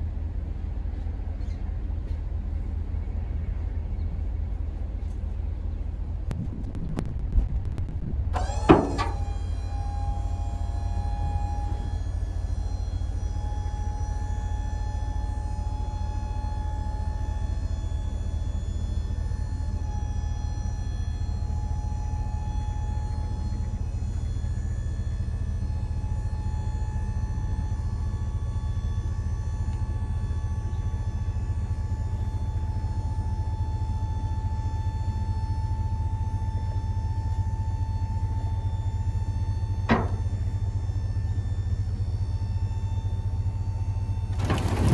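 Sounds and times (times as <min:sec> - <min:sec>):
truck rumbling on road: 0:05.6 - 0:11.0, 0:39.8 - 0:41.0, 0:44.2 - 0:44.9.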